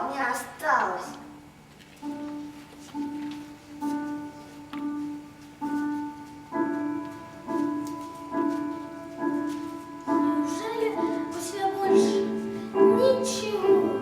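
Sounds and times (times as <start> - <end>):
slow piano music: 1.2 - 14.0.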